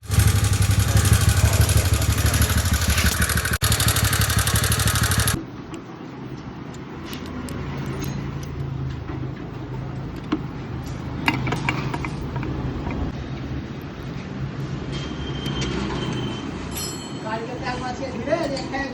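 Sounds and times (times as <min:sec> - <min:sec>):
scooter engine running: 0:00.0 - 0:05.4.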